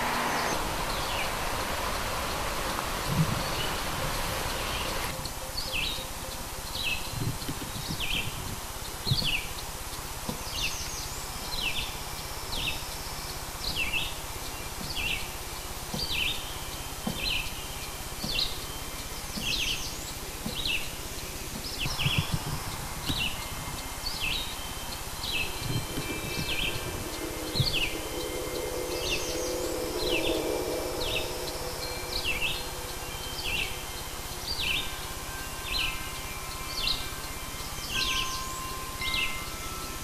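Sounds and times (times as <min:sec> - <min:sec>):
bird chirping: 0:00.0 - 0:40.0
outdoor hiss: 0:00.0 - 0:40.0
low thumps: 0:21.6 - 0:34.6.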